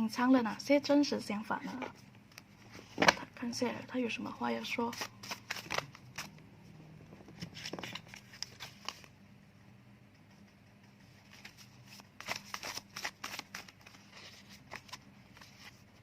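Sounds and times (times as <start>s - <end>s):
cards being shuffled: 4.8s - 6.4s, 7.2s - 9.1s, 11.2s - 15.8s.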